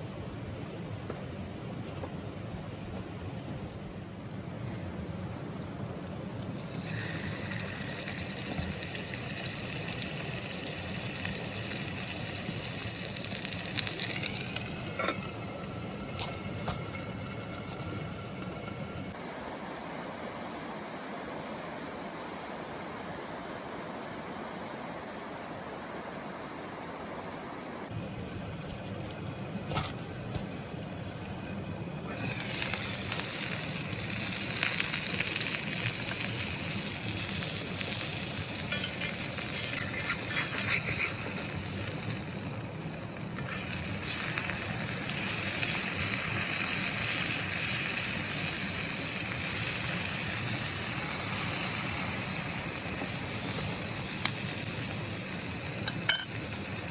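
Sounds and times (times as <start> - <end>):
crackles and spits: 6.4 - 19.2, 27.9 - 56.9
food sizzling in a pan: 6.5 - 19.2, 27.9 - 56.9.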